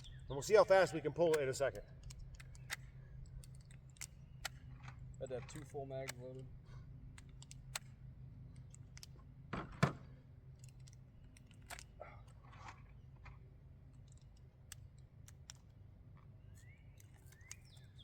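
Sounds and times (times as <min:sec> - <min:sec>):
cartridges clicking into magazine: 0:01.1 - 0:06.5, 0:07.1 - 0:09.2, 0:10.5 - 0:12.0, 0:13.9 - 0:15.8, 0:16.6 - 0:18.0.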